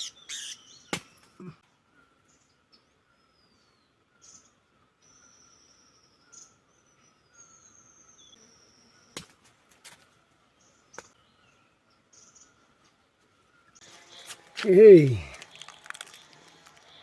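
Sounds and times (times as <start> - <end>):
thin high-pitched calls: 0.0 - 0.6.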